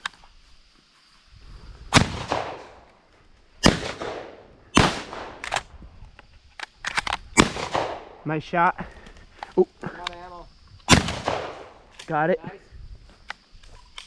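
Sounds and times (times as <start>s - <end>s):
shotgun blasts echoing: 1.9s - 2.8s, 3.6s - 5.6s, 7.4s - 8.2s, 10.9s - 11.8s.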